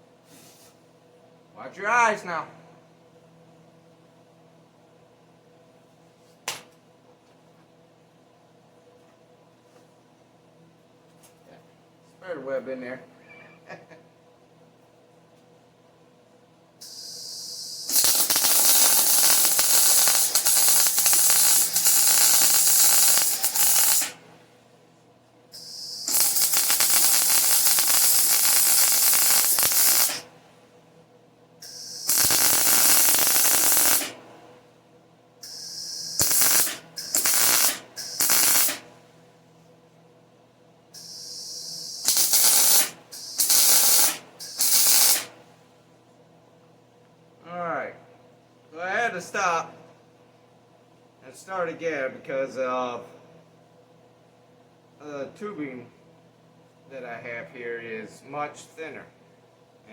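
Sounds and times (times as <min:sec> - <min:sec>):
welder crackling sizzle: 0:16.8 - 0:24.2, 0:25.6 - 0:30.3, 0:31.6 - 0:34.3, 0:35.4 - 0:38.9, 0:41.0 - 0:45.4
brief hiss: 0:35.4 - 0:38.8.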